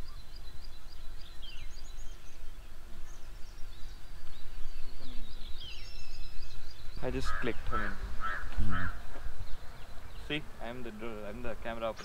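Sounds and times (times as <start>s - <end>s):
small birds chirping: 0.0s - 12.0s
low outdoor rumble: 6.6s - 12.0s.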